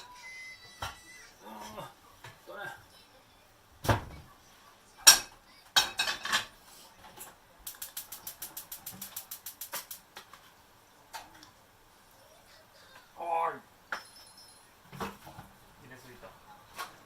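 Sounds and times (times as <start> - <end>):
cookware and utensils knocking: 5.0 - 6.5
ratcheting clicks: 7.7 - 10.0.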